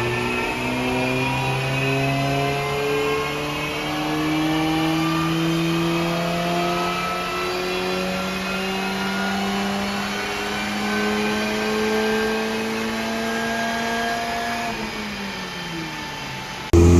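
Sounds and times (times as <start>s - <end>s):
supercharged car engine under load: 0.0s - 16.9s.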